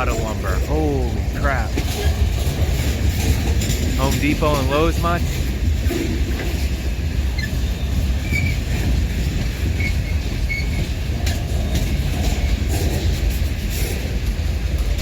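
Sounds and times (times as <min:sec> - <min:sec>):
train wheels rumbling on rail: 0:00.0 - 0:15.0
wheel squeals: 0:05.8 - 0:13.9.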